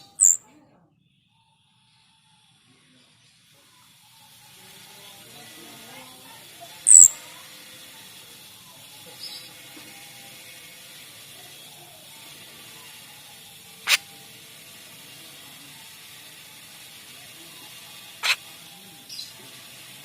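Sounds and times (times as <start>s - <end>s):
bird chirping sharp notes: 0.0s - 0.5s, 6.9s - 7.2s.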